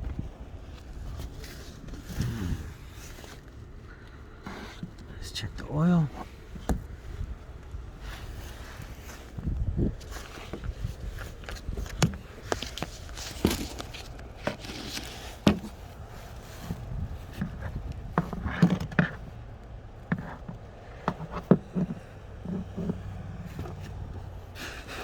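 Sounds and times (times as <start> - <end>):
hands clicking and knocking in engine bay: 9.1 - 25.0.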